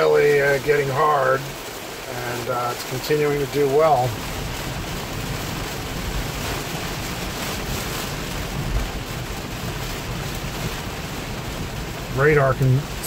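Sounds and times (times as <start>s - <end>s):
heavy rain hitting a car: 0.0s - 13.0s.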